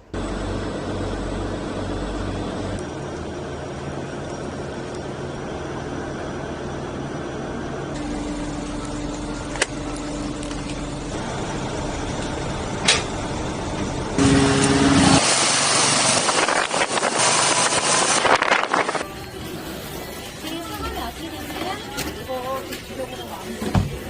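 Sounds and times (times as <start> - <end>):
vehicle engine running: 0.0 - 24.0
loud rush of noise: 14.0 - 21.4.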